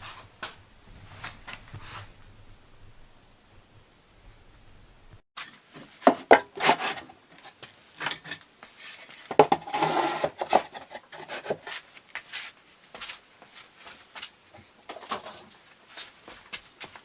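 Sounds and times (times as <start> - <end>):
scraping rub: 0.0 - 2.5
knocks and clatter of wood: 5.8 - 7.0, 9.3 - 11.6.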